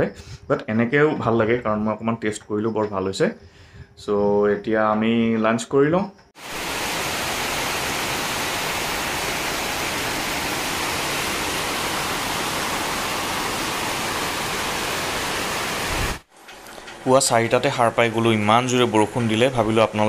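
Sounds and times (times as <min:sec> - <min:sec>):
heavy rain pouring: 0:06.4 - 0:20.0.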